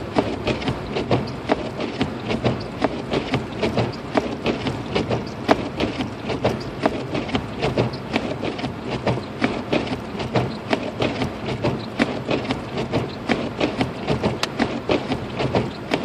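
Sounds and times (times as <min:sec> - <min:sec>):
road rumble inside car: 0:00.0 - 0:16.0
snow ticking and tapping: 0:00.0 - 0:16.0.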